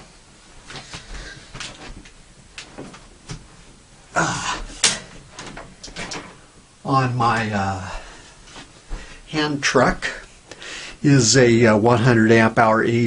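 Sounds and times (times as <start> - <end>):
handling clicks and knocks: 4.8 - 6.4.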